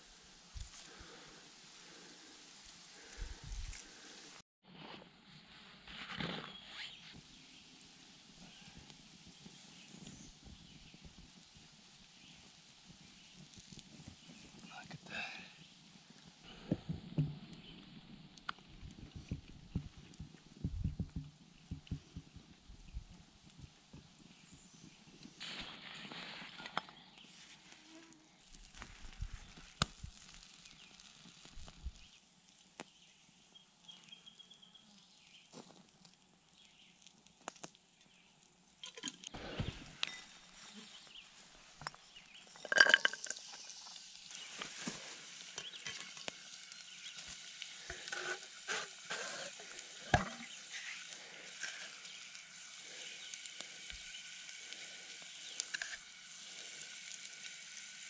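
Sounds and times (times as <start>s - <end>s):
vegetables sizzling in oil: 27.3s - 32.8s, 38.8s - 58.0s
clinks and knocks of handling: 42.5s - 43.6s.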